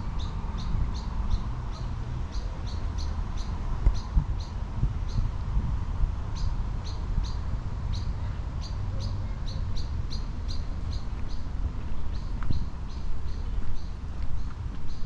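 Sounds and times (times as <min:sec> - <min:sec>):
steady low rumble: 0:00.0 - 0:15.0
bird chirping: 0:06.4 - 0:15.0.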